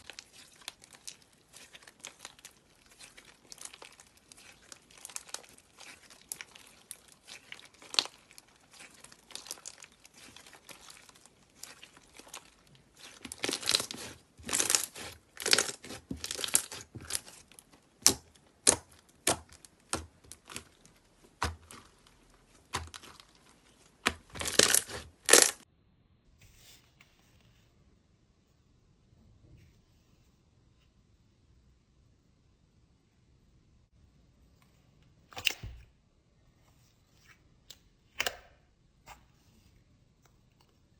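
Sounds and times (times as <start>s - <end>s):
slime squishing and popping: 0.0s - 25.6s.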